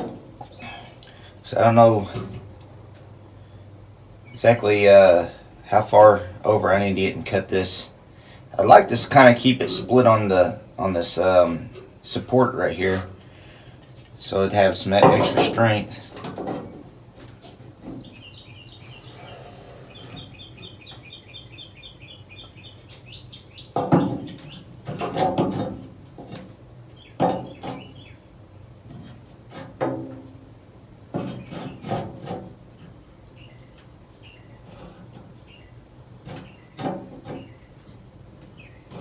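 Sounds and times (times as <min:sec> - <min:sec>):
tools and metal clattering: 0:15.0 - 0:18.2, 0:23.8 - 0:26.5
small bird chirping trill: 0:16.7 - 0:17.1, 0:18.0 - 0:23.8, 0:26.9 - 0:28.3, 0:33.2 - 0:34.7.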